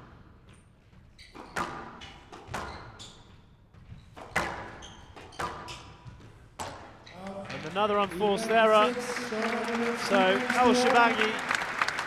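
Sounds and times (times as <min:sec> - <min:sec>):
shoes squeaking on wooden floor: 0:00.5 - 0:07.2
squash ball hitting rackets and walls: 0:01.3 - 0:07.1.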